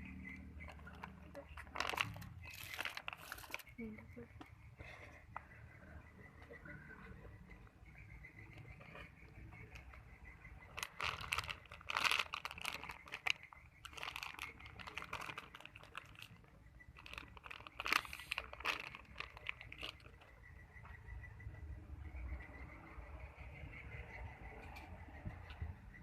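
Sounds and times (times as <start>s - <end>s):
plastic crinkling: 0.7s - 4.0s, 10.7s - 20.3s.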